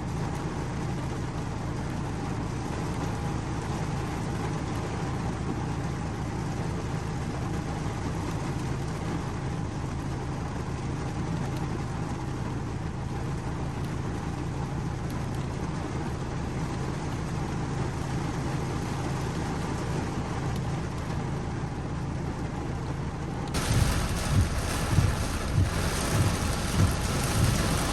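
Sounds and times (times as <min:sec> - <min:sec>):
steady rain: 0:00.0 - 0:27.9
deep rumble: 0:23.6 - 0:27.9.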